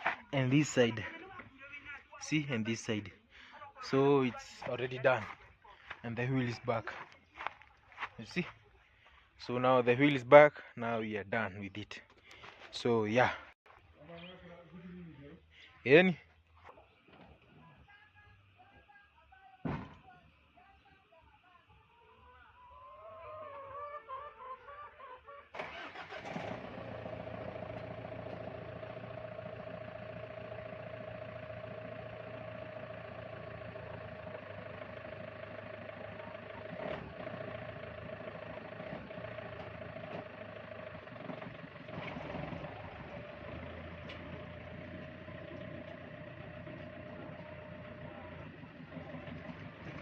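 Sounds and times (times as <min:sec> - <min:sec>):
car engine starting and running: 0:25.6 - 0:50.0.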